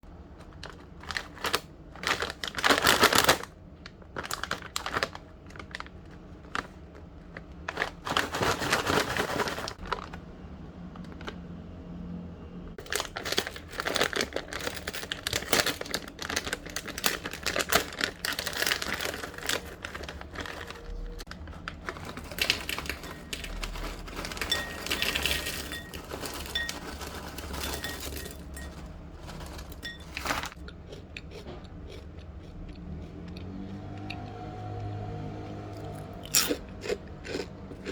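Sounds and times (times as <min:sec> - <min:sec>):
plastic snack bag crinkling: 0:00.4 - 0:10.3, 0:12.8 - 0:31.0.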